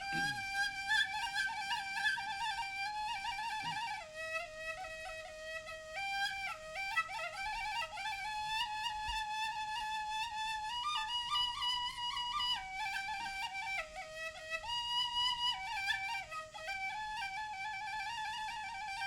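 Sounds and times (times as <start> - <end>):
bamboo flute melody: 0.0 - 19.0.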